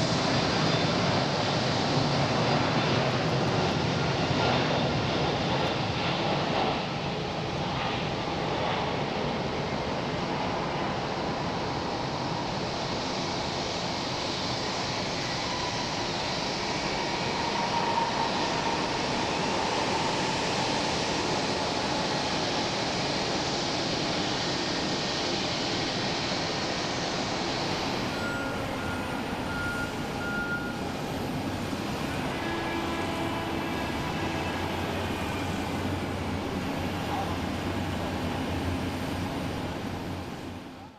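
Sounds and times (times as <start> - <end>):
jet engine noise: 0.0 - 40.9
faint short beeping tone: 28.1 - 30.8.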